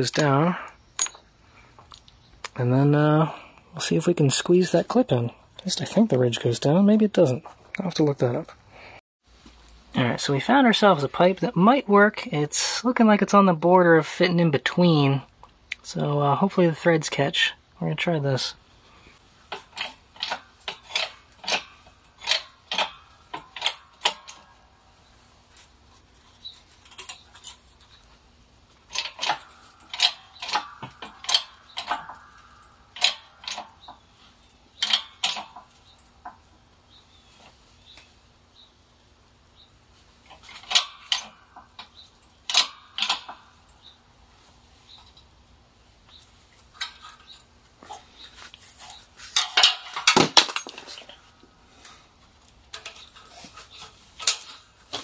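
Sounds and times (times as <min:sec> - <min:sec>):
metal tools clinking: 0:01.0 - 0:01.3, 0:19.5 - 0:24.7, 0:25.5 - 0:36.4, 0:46.5 - 0:51.4.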